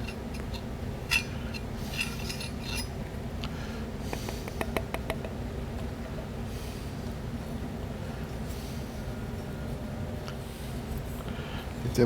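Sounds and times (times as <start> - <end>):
metal parts clicking and scraping: 0.0 - 3.0
steady low hum: 0.0 - 12.0.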